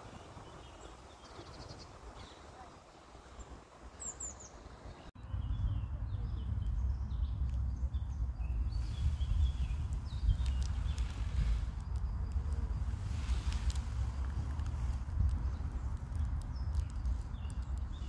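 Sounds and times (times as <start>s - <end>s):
songbirds chirping: 0.0s - 18.0s
loud uneven low rumble: 5.2s - 18.0s.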